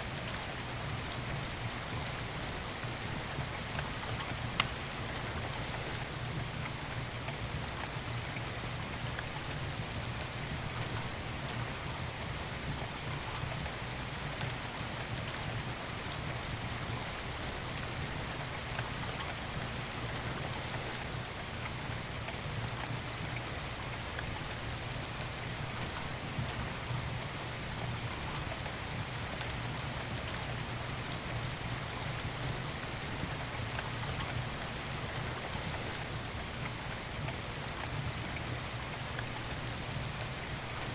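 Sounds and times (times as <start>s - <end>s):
steady rain falling: 0.0s - 40.9s
faint clicks: 4.2s - 4.8s.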